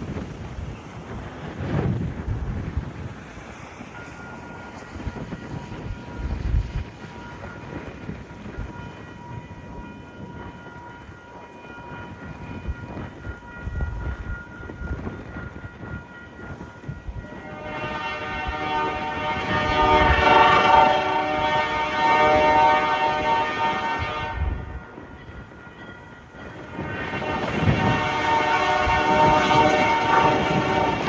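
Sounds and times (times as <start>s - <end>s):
diesel locomotive horn blast: 17.2s - 24.9s, 27.0s - 31.0s.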